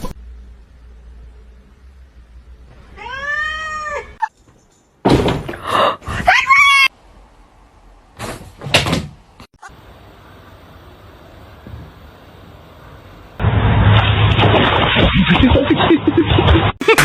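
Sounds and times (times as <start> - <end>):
cat meowing: 2.9 - 4.3.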